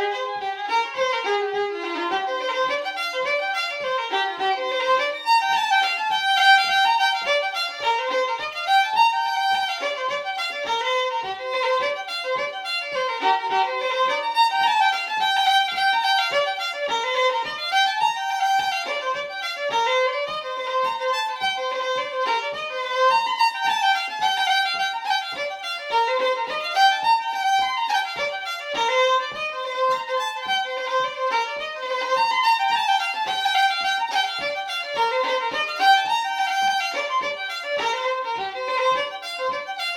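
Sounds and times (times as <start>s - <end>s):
fiddle playing a reel: 0.0s - 39.9s.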